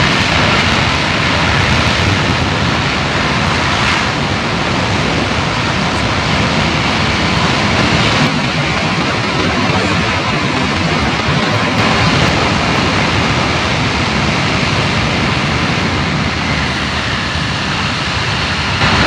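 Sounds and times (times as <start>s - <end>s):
jet engines roaring in reverse thrust: 0.0s - 19.0s.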